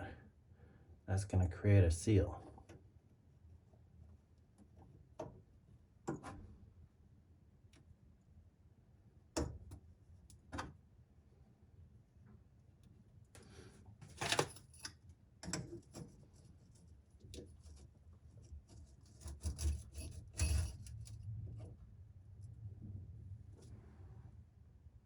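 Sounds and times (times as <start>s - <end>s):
pipe fittings rubbing and clicking: 14.0s - 22.9s.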